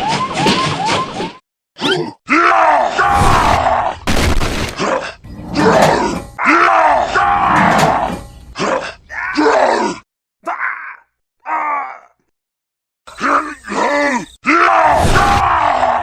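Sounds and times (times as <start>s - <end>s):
person making wordless vocal cries: 8.6s - 12.2s, 13.1s - 14.8s.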